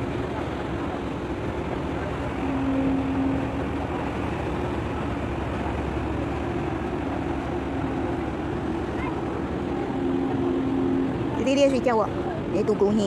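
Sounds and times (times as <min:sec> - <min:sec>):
boat engine rumbling: 0:00.0 - 0:13.0.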